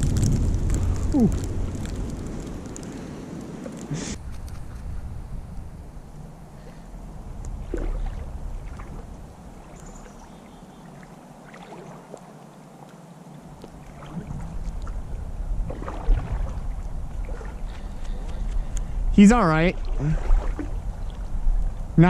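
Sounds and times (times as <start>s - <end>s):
wind rumbling on microphone: 0.0s - 12.0s, 13.4s - 22.0s
fish splashing in water: 7.6s - 12.3s, 13.6s - 18.2s, 19.8s - 21.2s.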